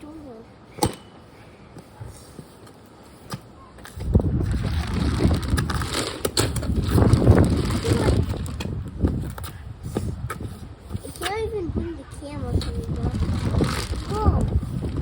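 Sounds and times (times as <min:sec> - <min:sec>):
wind gust buffeting microphone: 0:04.0 - 0:15.0.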